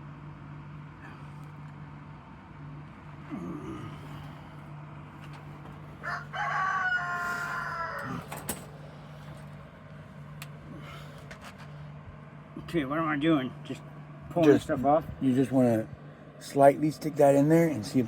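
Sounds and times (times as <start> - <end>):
steady low hum: 0.0 - 18.0
rooster crowing: 5.8 - 8.6.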